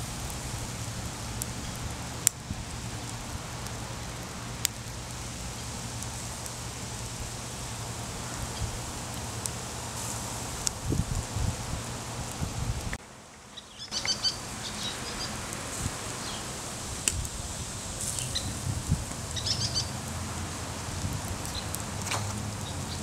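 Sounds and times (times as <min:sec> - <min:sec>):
small birds chirping: 0:13.4 - 0:20.0, 0:21.4 - 0:21.8, 0:22.6 - 0:23.0.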